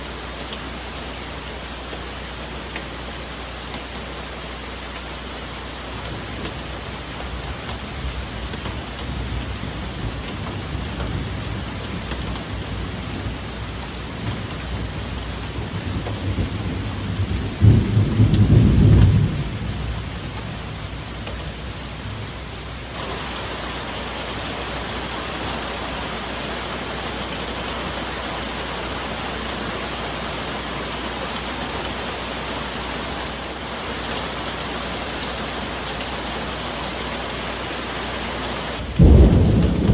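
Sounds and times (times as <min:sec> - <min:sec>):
rain falling on foliage: 0:00.0 - 0:39.9
thunder rumbling and crashing: 0:14.2 - 0:20.8, 0:38.8 - 0:39.9.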